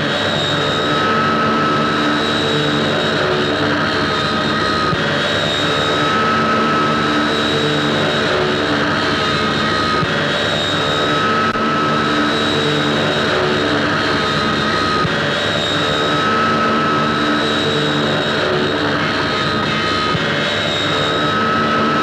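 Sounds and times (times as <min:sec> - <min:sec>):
high whine: 0:00.0 - 0:22.0
propeller aircraft engine droning: 0:00.0 - 0:22.0.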